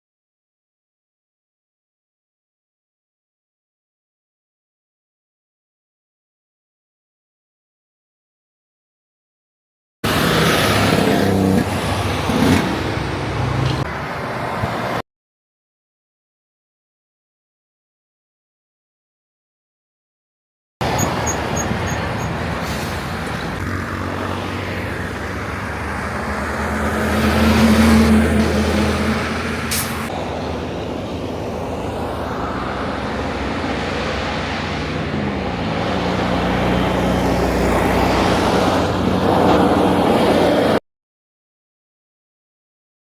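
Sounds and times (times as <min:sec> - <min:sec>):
heavy truck engine: 0:10.0 - 0:15.0, 0:20.8 - 0:40.8
faint high beeps: 0:21.0 - 0:22.4
short sharp hiss: 0:29.7 - 0:30.1.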